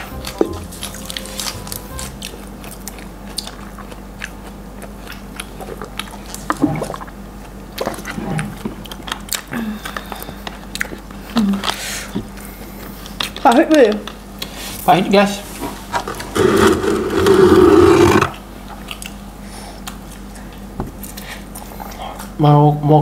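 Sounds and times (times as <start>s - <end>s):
person chewing food: 0.0s - 14.7s, 18.6s - 22.4s.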